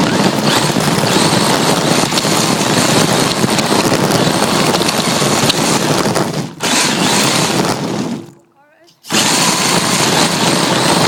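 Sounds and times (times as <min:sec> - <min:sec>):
high motor whine: 0:00.0 - 0:08.4
tyre and ground noise: 0:00.0 - 0:11.0.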